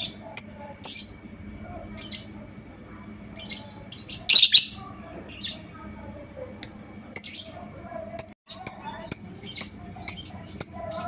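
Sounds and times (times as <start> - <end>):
lovebird chirping: 3.4 - 5.7.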